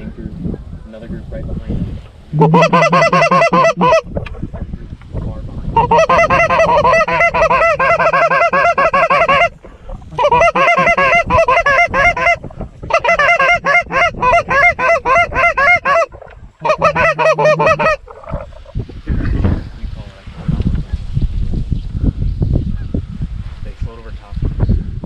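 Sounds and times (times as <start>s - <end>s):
goose call honks and clucks: 2.3s - 4.3s, 5.8s - 18.8s.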